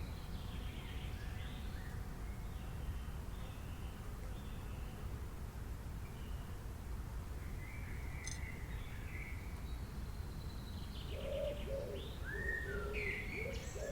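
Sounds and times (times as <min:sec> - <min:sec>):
bird cooing calls: 0:11.1 - 0:13.9.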